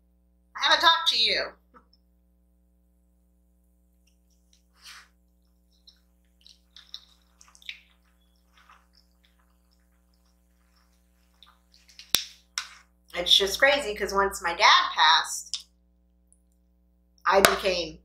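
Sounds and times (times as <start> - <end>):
low electrical hum: 0.0 - 18.0
wet chewing sounds: 4.1 - 12.6
squishy smacks: 5.8 - 12.7.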